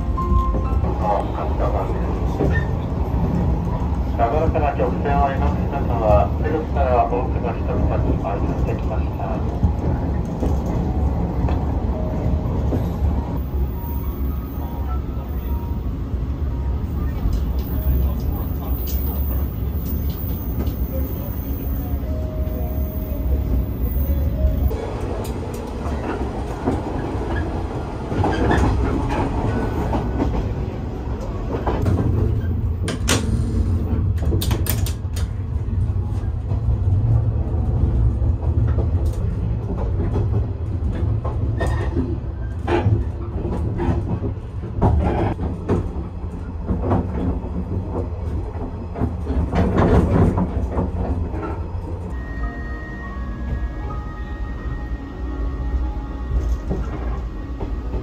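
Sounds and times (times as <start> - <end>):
train rumbling along track: 0.0 - 58.0
wheels clicking over rail joints: 31.1 - 35.5.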